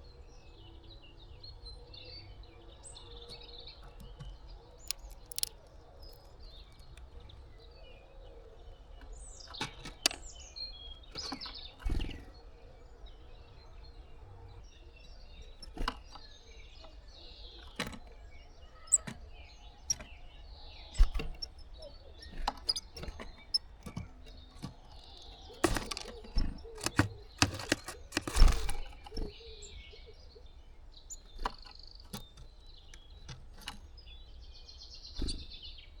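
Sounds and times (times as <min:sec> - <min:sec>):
small birds chirping faintly: 0:00.0 - 0:36.0
taps and knocks on wooden feeder: 0:23.9 - 0:29.2.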